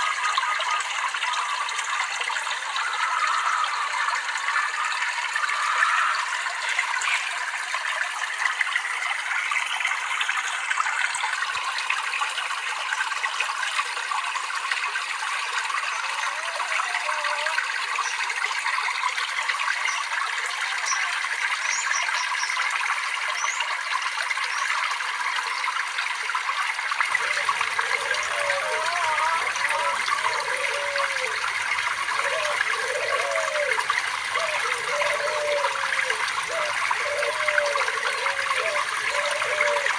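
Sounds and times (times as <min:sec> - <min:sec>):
water trickling and splashing: 0:00.0 - 0:16.5, 0:17.1 - 0:39.9
water gurgling and bubbling: 0:27.1 - 0:39.9.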